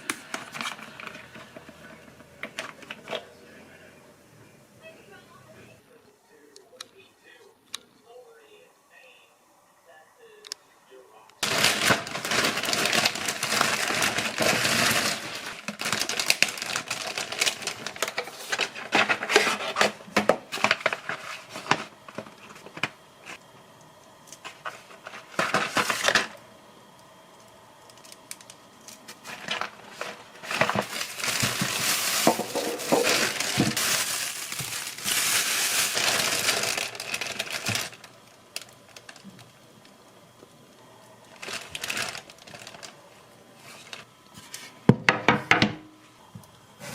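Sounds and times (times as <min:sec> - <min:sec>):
objects rustling and clattering: 0:00.0 - 0:03.4, 0:11.4 - 0:23.4, 0:24.2 - 0:26.4, 0:28.0 - 0:39.6, 0:41.3 - 0:45.7.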